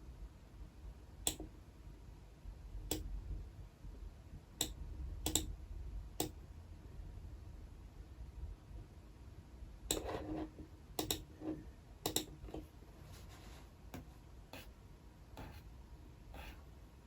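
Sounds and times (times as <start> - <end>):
computer desk clicks and taps: 4.6 - 5.5, 9.9 - 10.2, 11.0 - 11.3, 12.0 - 12.7.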